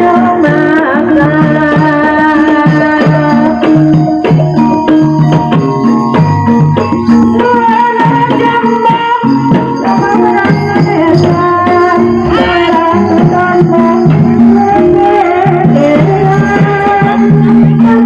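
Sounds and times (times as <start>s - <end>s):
hand drums: 0.0s - 18.0s
metal percussion: 0.0s - 18.0s
sliding melody line: 11.8s - 16.0s.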